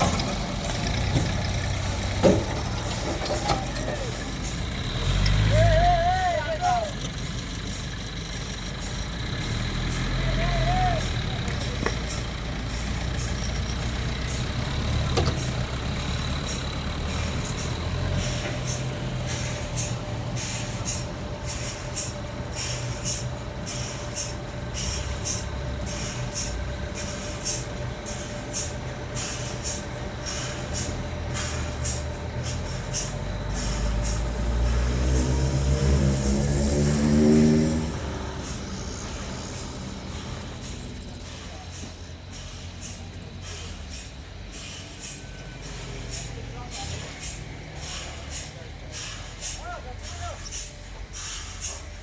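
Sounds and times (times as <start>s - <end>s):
engine revving up: 0.0s - 6.6s, 30.5s - 43.9s
sawmill machinery humming and whining: 0.0s - 52.0s.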